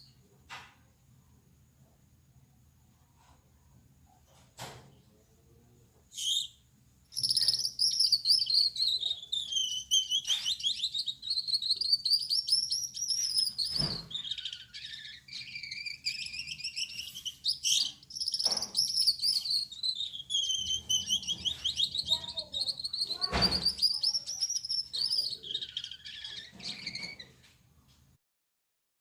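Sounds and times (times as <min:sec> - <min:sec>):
finch buzzy warbling song: 0:07.2 - 0:27.1.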